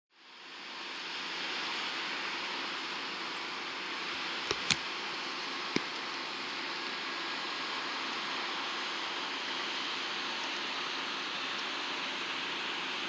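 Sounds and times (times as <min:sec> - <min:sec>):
sharp clicks: 0:04.5 - 0:04.8.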